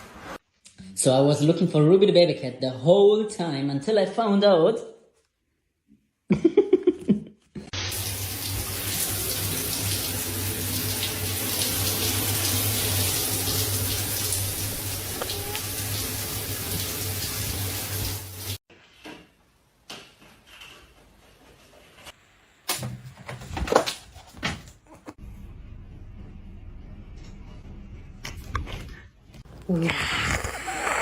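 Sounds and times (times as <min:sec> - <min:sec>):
water running from a tap: 0:07.8 - 0:18.6.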